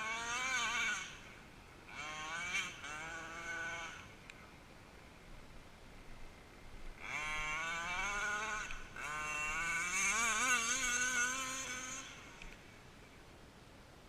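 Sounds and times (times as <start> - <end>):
small two-stroke engine revving: 0.0 - 4.4, 6.2 - 13.0.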